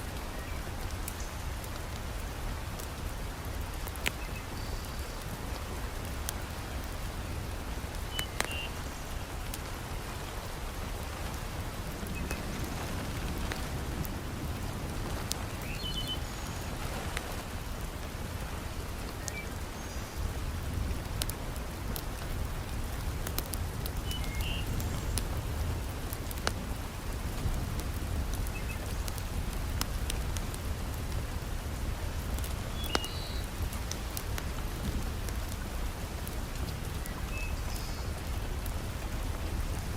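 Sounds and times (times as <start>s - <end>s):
wood fire crackling and popping: 0.0s - 4.5s, 5.2s - 9.6s, 20.2s - 39.9s
heavy rain falling: 0.0s - 39.9s.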